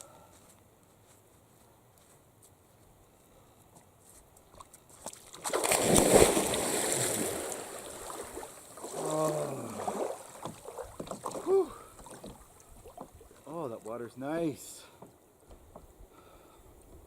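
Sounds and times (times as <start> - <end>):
water sloshing: 5.0 - 14.0
big splash into water: 5.3 - 10.4
person exclaiming: 9.0 - 9.9, 11.4 - 11.9.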